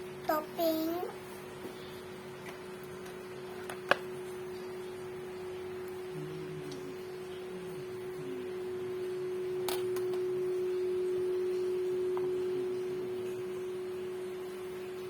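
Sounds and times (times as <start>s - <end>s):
low hum: 3.9s - 15.0s.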